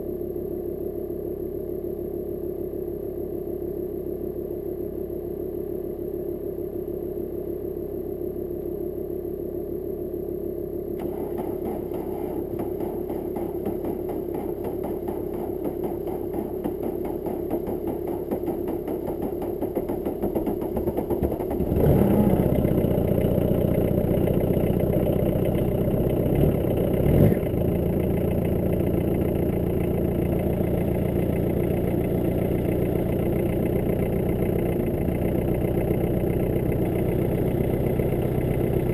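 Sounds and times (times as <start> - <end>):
diesel engine idling roughly: 11.0 - 38.9.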